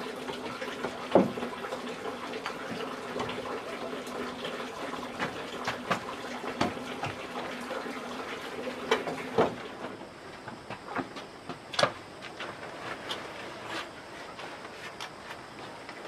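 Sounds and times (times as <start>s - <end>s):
water running and splashing: 0.0s - 9.8s.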